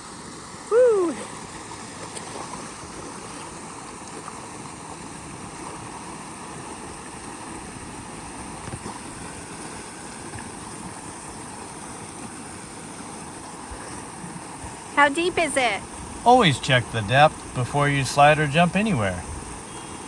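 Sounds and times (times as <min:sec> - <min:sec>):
creek water cascading: 0:16.0 - 0:19.2.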